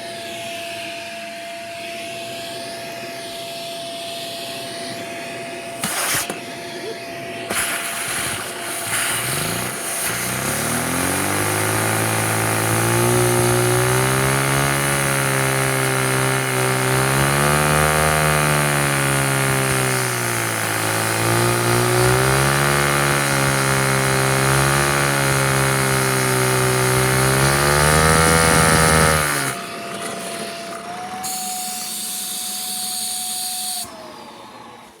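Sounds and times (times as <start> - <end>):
vacuum engine buzzing hum: 0.0 - 35.0.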